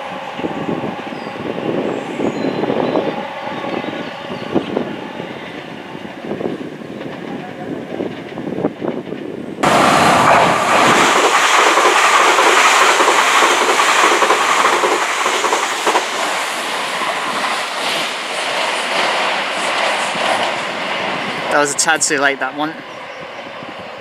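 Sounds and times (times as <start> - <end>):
train passing at speed: 0.0 - 24.0
wheels clacking over rail joints: 6.4 - 21.6.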